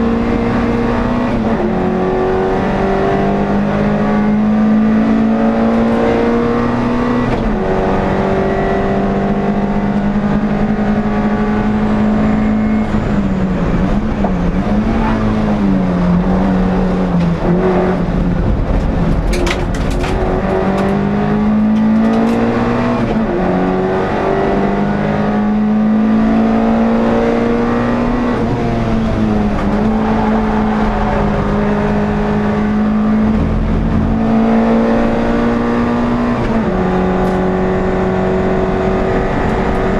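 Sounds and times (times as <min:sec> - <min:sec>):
race car engine at high revs: 0:00.0 - 0:39.9.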